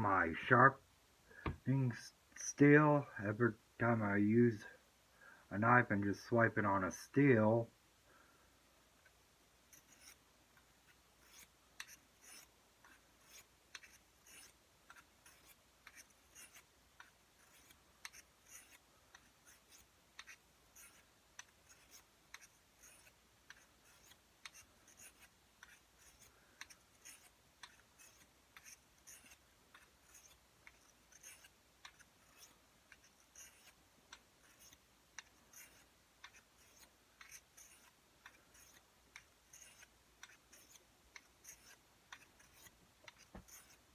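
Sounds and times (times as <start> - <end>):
blade scraping on sharpening steel: 9.7 - 10.2, 11.2 - 12.5, 13.2 - 16.6, 17.4 - 18.8, 19.4 - 33.8, 34.4 - 38.8, 39.5 - 43.8.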